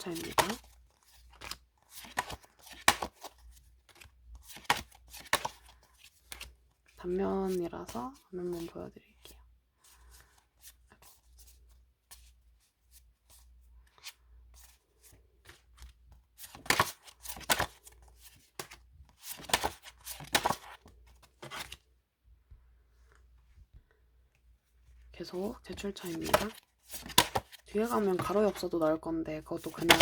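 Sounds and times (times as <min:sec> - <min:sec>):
postcards flicking: 0:00.0 - 0:00.7, 0:01.3 - 0:05.7, 0:16.4 - 0:21.8, 0:25.7 - 0:28.7, 0:29.6 - 0:30.0
card and paper rustling: 0:00.0 - 0:21.9, 0:25.0 - 0:30.0.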